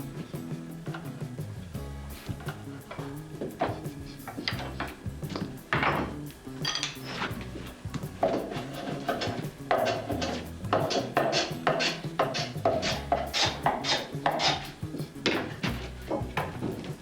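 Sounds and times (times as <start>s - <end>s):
hand tool cutting wood: 2.2s - 17.0s.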